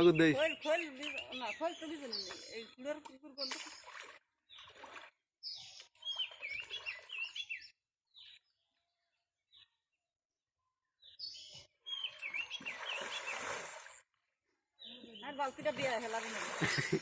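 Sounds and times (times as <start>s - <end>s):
songbird warbling: 0.0s - 4.0s.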